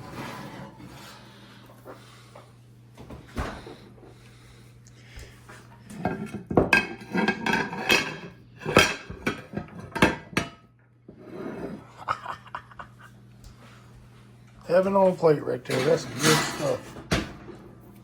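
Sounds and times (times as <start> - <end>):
cutlery clinking on dishes: 15.7 - 17.0.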